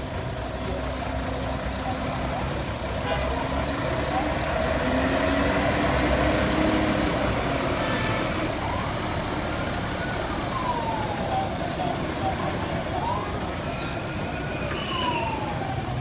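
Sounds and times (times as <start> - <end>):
heavy truck engines running: 0.0 - 16.0
voices in background: 0.4 - 5.4.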